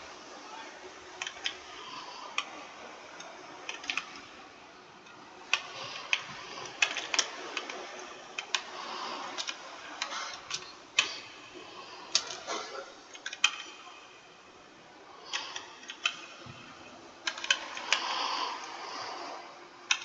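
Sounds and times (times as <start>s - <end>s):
computer keyboard typing: 3.2s - 4.4s, 5.4s - 11.4s, 12.1s - 14.1s, 15.3s - 18.8s.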